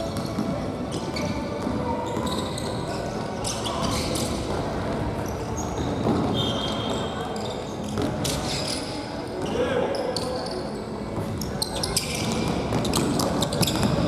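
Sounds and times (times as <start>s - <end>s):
shoes squeaking on floor: 0.0s - 4.4s, 5.4s - 8.8s, 11.4s - 14.0s.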